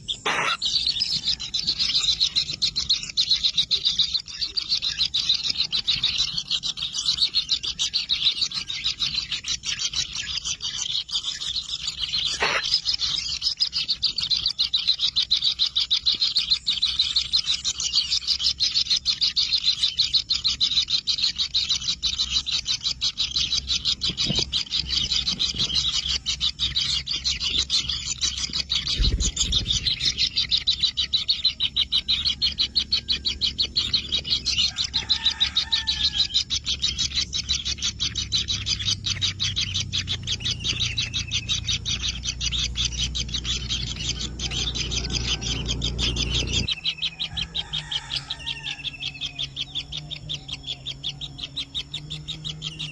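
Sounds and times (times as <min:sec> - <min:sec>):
nestlings calling buzz: 0:00.0 - 0:52.9.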